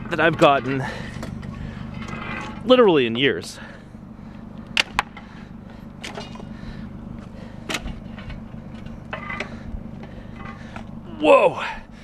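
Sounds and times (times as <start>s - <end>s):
steady low hum: 0.0s - 12.0s
metal clinks and knocks: 7.7s - 9.5s.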